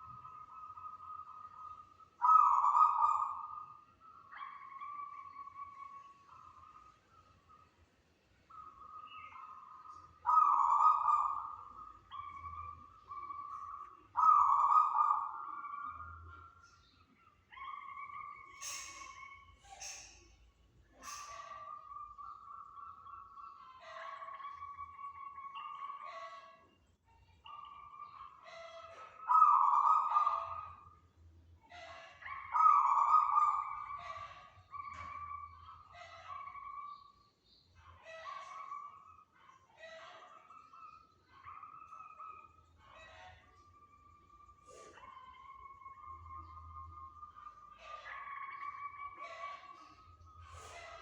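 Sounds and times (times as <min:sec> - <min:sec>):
dove cooing: 0:02.2 - 0:03.5, 0:10.3 - 0:12.3, 0:14.1 - 0:15.7.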